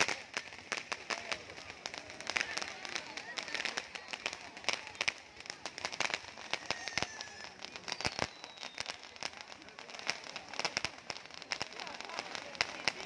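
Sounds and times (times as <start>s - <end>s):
fireworks popping and crackling: 0.0s - 13.0s
faint falling firework whistles: 6.1s - 9.7s.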